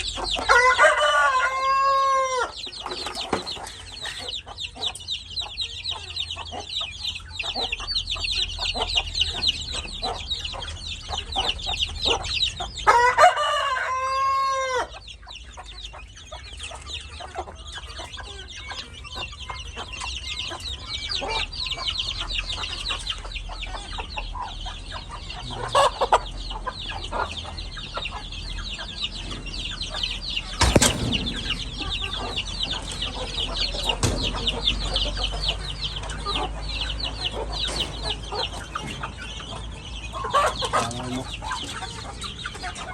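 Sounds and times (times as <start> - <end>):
rooster crowing: 0.5 - 2.6, 12.9 - 14.9
soft clucks: 15.0 - 42.9
sharp knock: 30.6 - 33.2.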